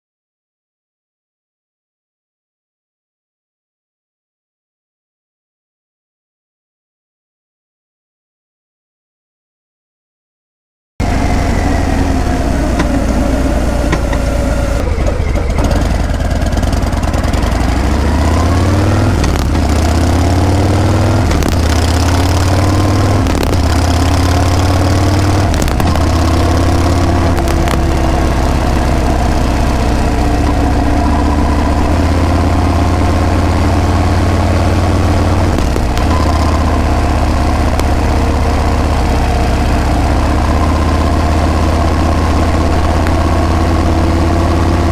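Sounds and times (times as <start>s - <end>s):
motorcycle engine revving: 11.0s - 44.9s.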